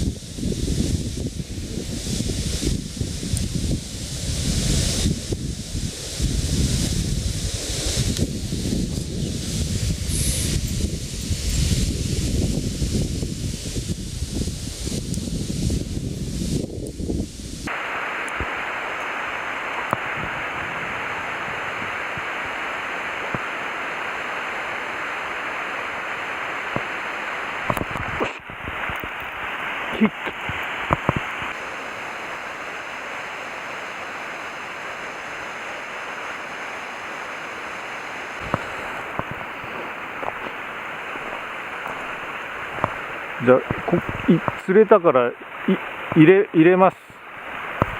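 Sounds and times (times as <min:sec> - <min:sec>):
stream flowing: 0:17.6 - 0:47.9.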